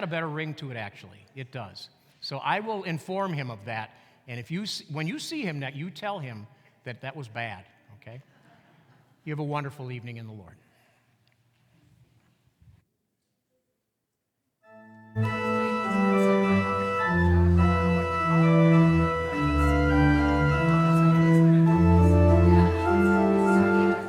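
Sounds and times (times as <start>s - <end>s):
church organ playing chords: 14.6s - 24.0s.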